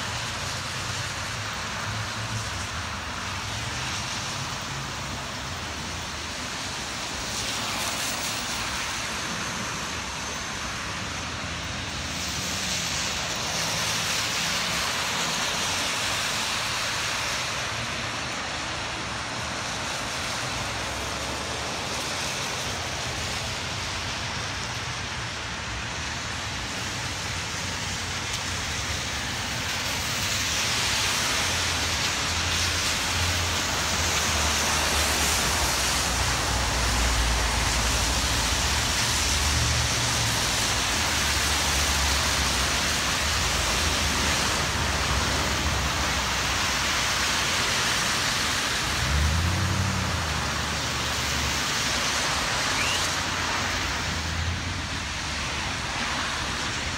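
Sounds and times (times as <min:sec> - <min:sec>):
cars driving through water: 0:00.0 - 0:56.9
rain hiss: 0:00.0 - 0:56.9.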